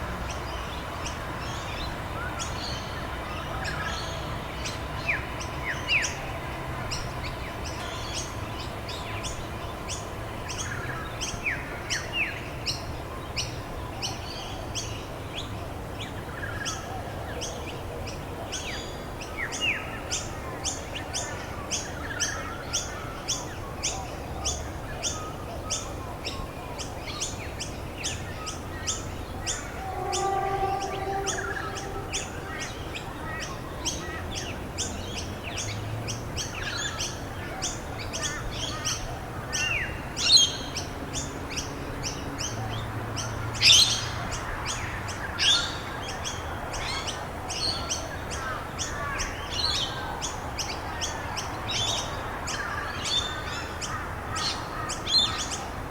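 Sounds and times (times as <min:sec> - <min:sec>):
loud sweeping bird calls: 0:28.9 - 0:33.5
other birds calling: 0:29.4 - 0:33.4.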